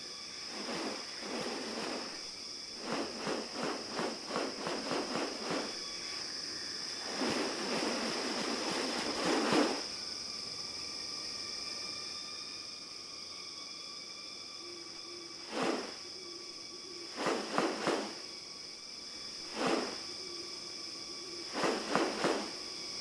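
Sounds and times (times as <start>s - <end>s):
high insect drone: 0.0s - 23.0s
rapid rattling pulses: 0.5s - 5.8s, 7.0s - 9.9s, 17.1s - 18.2s, 21.5s - 22.6s
rustling: 0.5s - 5.8s, 7.0s - 9.9s, 15.5s - 16.0s, 17.2s - 18.2s, 19.5s - 20.0s, 21.5s - 22.6s.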